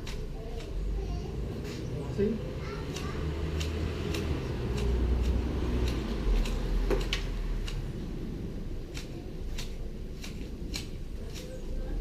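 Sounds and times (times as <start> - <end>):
pruning shears snipping twigs: 0.0 - 0.9, 2.8 - 8.0, 8.6 - 12.0.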